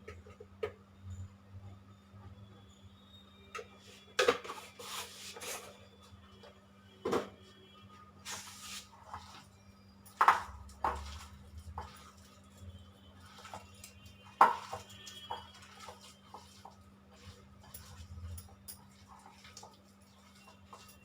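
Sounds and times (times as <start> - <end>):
utensil scraping a bowl: 10.8 - 21.0.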